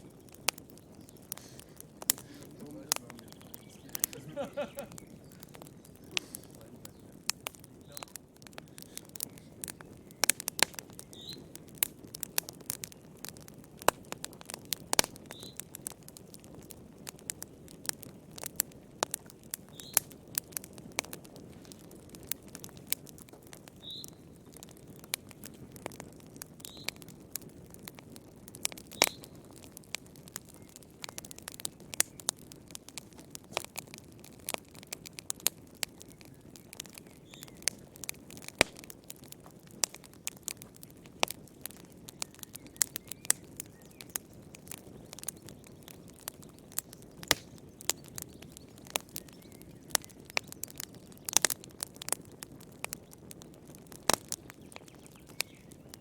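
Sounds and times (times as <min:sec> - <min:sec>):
low rumble of flames: 0:00.0 - 0:56.0
wood fire crackling: 0:00.0 - 0:56.0
faint bird chirps: 0:02.4 - 0:07.2, 0:11.0 - 0:11.5, 0:23.8 - 0:24.2, 0:47.9 - 0:50.6.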